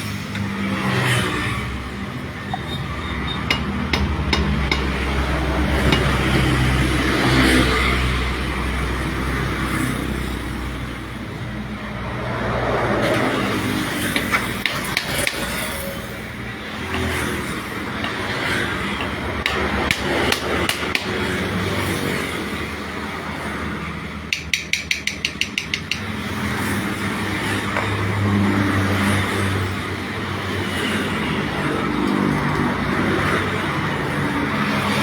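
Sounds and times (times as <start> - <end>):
sharp metal taps: 2.5 - 6.6, 14.1 - 15.8, 16.8 - 21.4, 24.3 - 26.4, 27.7 - 28.2.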